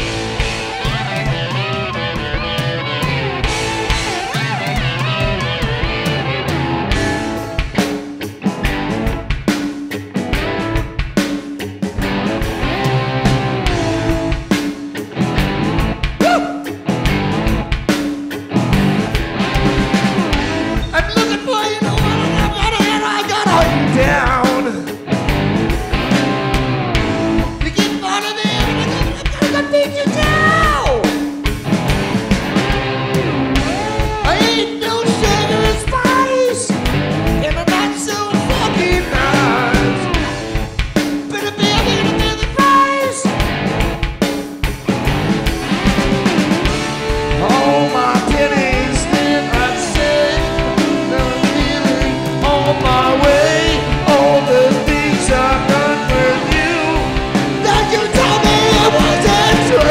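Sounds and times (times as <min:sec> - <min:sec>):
bass guitar: 0:00.0 - 0:59.9
drum beat: 0:00.0 - 0:59.9
live rock band playing: 0:00.0 - 0:59.9
sliding guitar lines: 0:18.5 - 0:27.6, 0:44.9 - 0:59.9.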